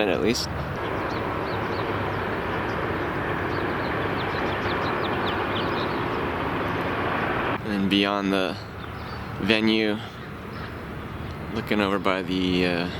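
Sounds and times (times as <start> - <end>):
construction machinery: 0.0 - 7.6
traffic rumble: 0.0 - 12.9.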